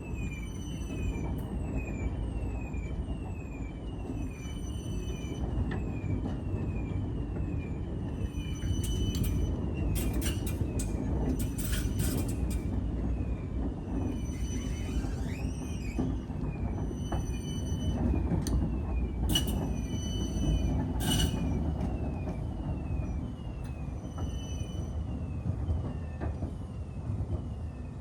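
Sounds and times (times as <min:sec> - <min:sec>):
tram rumbling on rails: 0:00.0 - 0:28.0
sharp clicks and squeaks: 0:08.0 - 0:12.8, 0:13.8 - 0:22.4.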